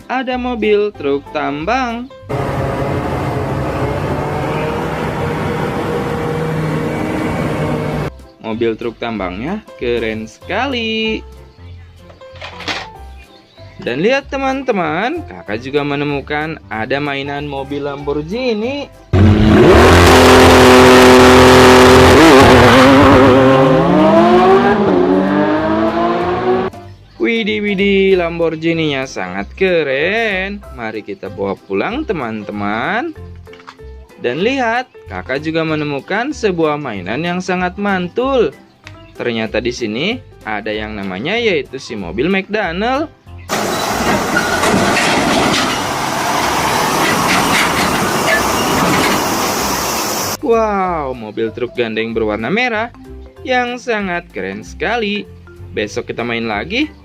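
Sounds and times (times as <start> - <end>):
sports car engine revving: 2.3 - 8.1, 19.2 - 26.7
mechanical rumbling and clatter: 43.5 - 49.5.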